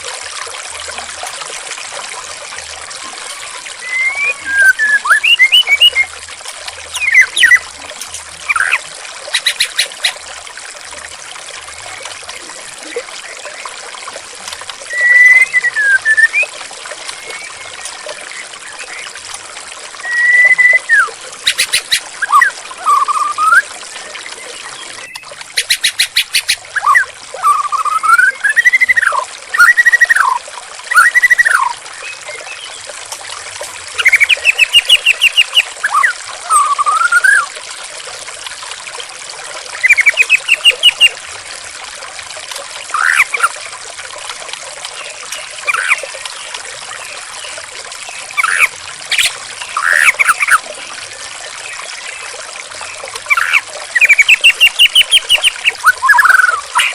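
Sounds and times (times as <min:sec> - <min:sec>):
water trickling: 0:00.0 - 0:56.9
bird singing whistles and trills: 0:03.8 - 0:06.2, 0:06.9 - 0:07.7, 0:08.4 - 0:10.2, 0:14.8 - 0:16.5, 0:20.0 - 0:32.9, 0:34.0 - 0:37.5, 0:39.8 - 0:41.2, 0:42.9 - 0:43.5, 0:45.0 - 0:46.1, 0:48.2 - 0:50.6, 0:53.3 - 0:56.9.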